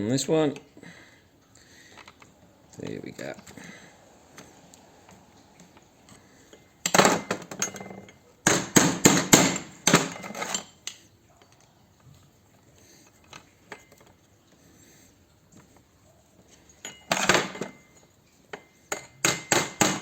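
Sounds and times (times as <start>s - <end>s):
metal-on-metal knocks: 6.9s - 10.7s, 18.6s - 20.0s.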